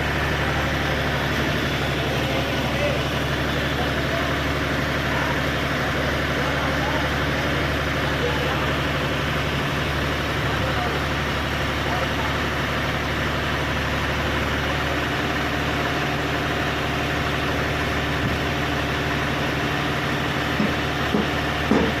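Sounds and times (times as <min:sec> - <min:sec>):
tractor engine idling: 0:00.0 - 0:22.0
short knocks: 0:20.6 - 0:22.0.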